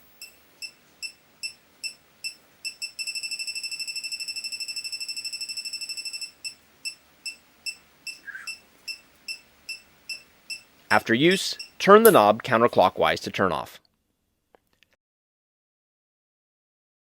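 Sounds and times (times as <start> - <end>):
leak detector beeping: 0.1 - 12.2.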